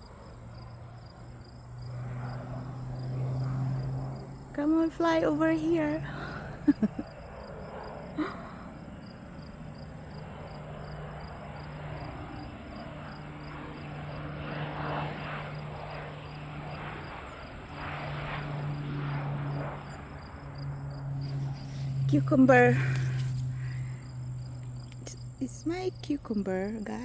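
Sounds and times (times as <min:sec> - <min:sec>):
insects chirping: 0:00.0 - 0:27.0
low engine drone: 0:00.0 - 0:27.0.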